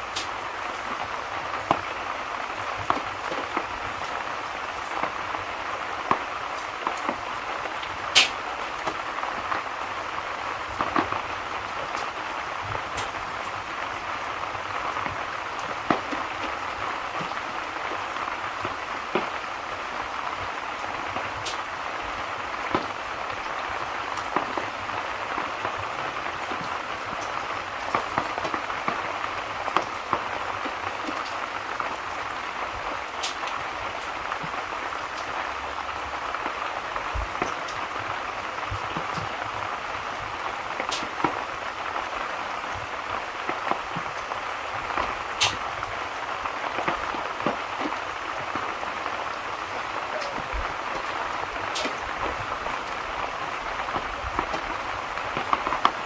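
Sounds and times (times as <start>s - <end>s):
steady rain falling: 0.0s - 56.0s
short sharp pops: 8.1s - 8.4s, 45.4s - 45.6s.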